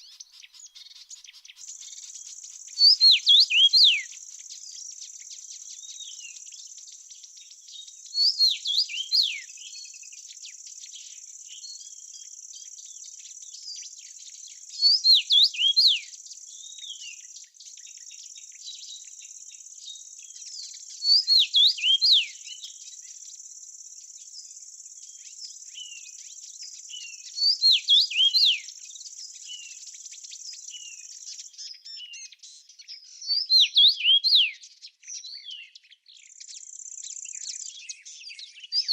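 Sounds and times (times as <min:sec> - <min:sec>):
songbird whistling: 0:00.0 - 0:12.8, 0:13.5 - 0:23.2, 0:25.1 - 0:38.9.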